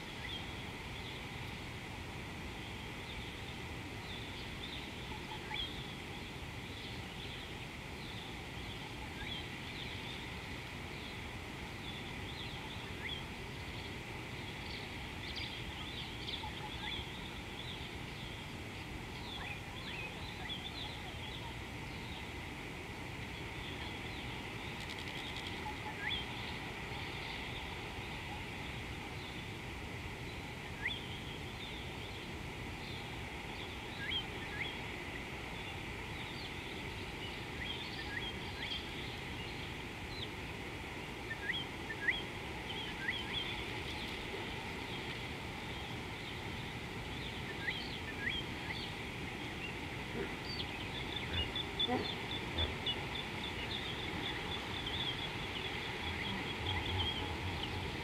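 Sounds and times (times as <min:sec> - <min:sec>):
low background noise: 0:00.0 - 0:58.0
birds chirping: 0:41.3 - 0:58.0.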